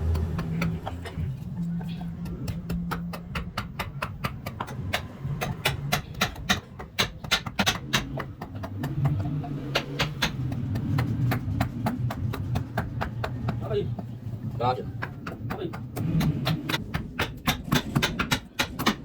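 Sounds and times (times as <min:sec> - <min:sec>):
low steady hum: 0:00.0 - 0:18.0
rapid sharp knocks: 0:02.1 - 0:19.0.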